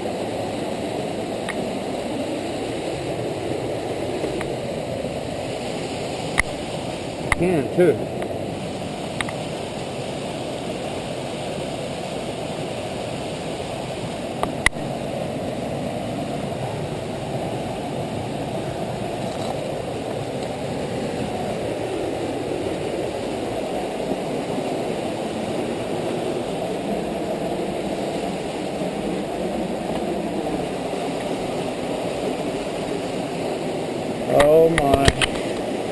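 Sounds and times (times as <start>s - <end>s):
waterfall rushing: 0.0s - 35.9s
sharp click: 34.4s - 35.5s.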